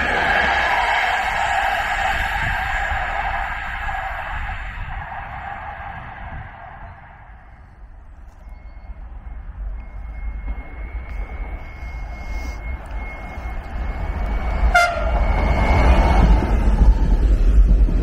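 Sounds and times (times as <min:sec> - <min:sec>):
electric train running past: 0:00.0 - 0:18.0
thin steady high tone: 0:07.8 - 0:16.8
train horn toot: 0:14.3 - 0:16.6.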